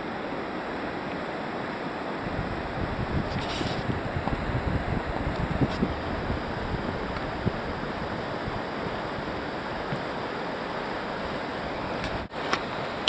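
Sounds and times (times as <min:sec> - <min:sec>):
whitewater rapids rushing: 0:00.0 - 0:13.0.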